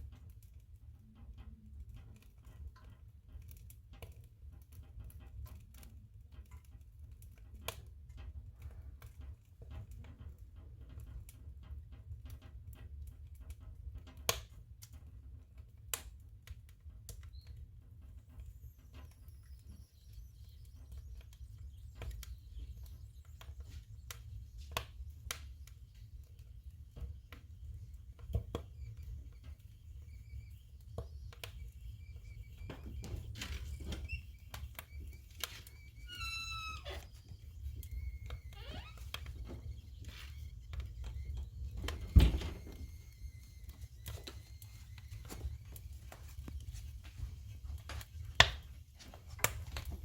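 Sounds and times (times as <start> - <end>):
firewood crackling and popping: 0.0 - 50.0
faint thin whistle: 18.4 - 26.0, 26.7 - 48.7.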